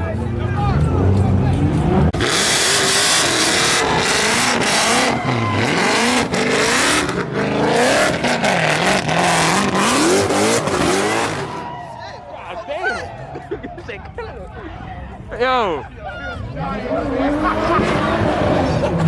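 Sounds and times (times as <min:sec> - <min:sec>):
car engine revving: 0:00.0 - 0:11.9, 0:16.4 - 0:19.0
loud tire screech: 0:02.2 - 0:12.2.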